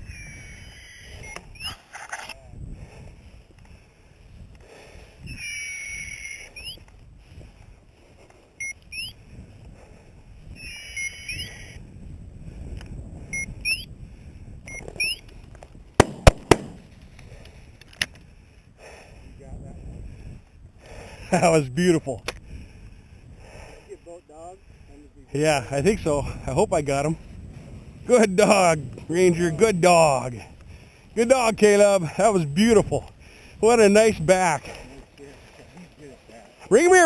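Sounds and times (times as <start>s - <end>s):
shotgun shots: 16.0s - 16.9s.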